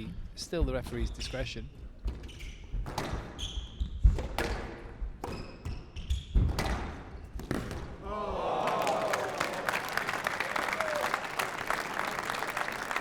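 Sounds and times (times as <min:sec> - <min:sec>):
shoes squeaking on wooden floor: 0:01.9 - 0:04.0
squash ball hitting rackets and walls: 0:02.0 - 0:08.0.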